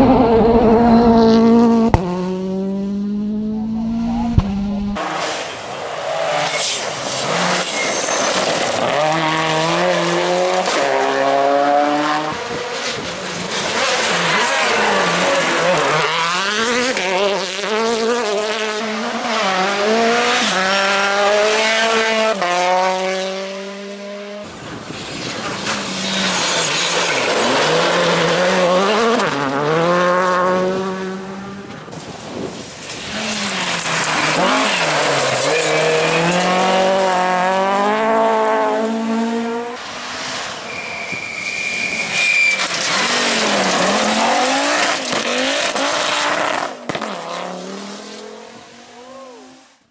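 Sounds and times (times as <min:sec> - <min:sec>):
rally car engines at full throttle: 0:00.0 - 0:49.9
tyre and gravel noise: 0:04.3 - 0:11.1, 0:24.4 - 0:30.3, 0:31.6 - 0:38.3, 0:39.8 - 0:47.2.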